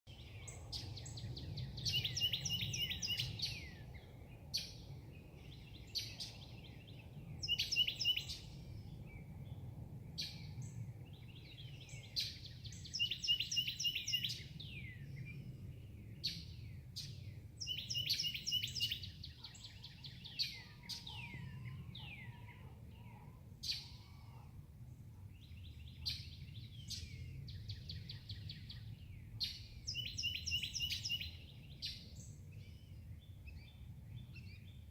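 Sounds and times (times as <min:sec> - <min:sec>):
bird chirps: 0:00.1 - 0:08.6, 0:11.2 - 0:15.4, 0:16.2 - 0:24.4, 0:25.3 - 0:34.8
songbird whistling and trilling: 0:00.8 - 0:03.8, 0:07.4 - 0:08.5, 0:11.8 - 0:15.0, 0:16.2 - 0:22.4, 0:29.4 - 0:32.0.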